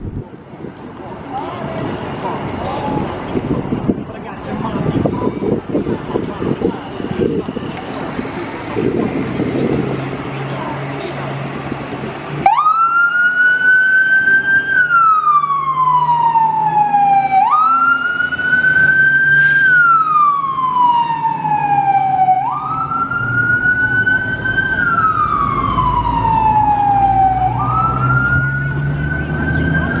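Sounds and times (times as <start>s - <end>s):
truck engine rumble: 0.0s - 30.0s
fire engine siren wailing: 12.3s - 30.0s.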